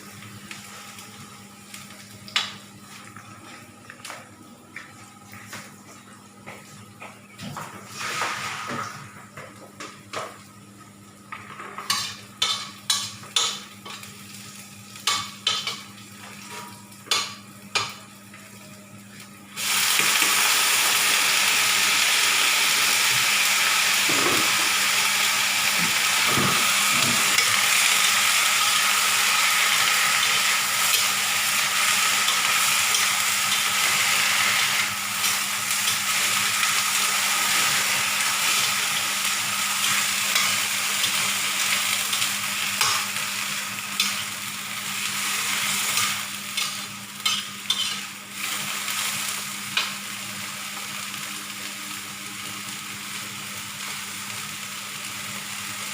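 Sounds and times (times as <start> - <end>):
food sizzling in a frying pan: 7.8 - 9.1, 9.9 - 55.9
spatula stirring food: 46.6 - 48.0.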